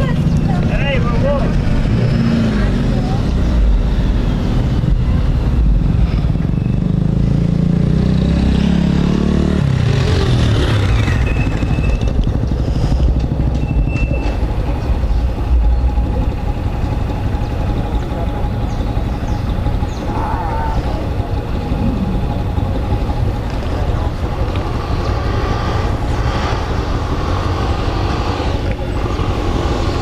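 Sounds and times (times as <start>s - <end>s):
motorcycle engine running: 0.0s - 30.0s
road noise: 0.0s - 30.0s
wind noise: 21.1s - 23.8s.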